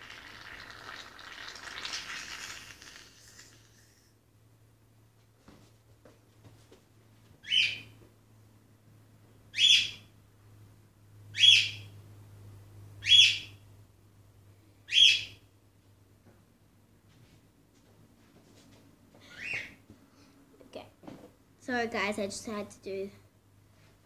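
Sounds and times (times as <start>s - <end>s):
bird shrill call: 9.6s - 10.0s, 11.4s - 11.8s, 13.0s - 13.5s, 14.9s - 15.4s.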